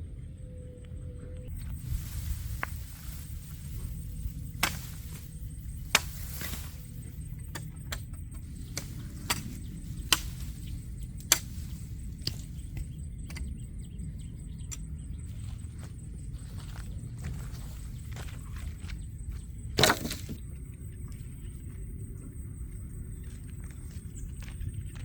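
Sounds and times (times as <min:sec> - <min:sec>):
steady low rumble: 0:00.0 - 0:19.8.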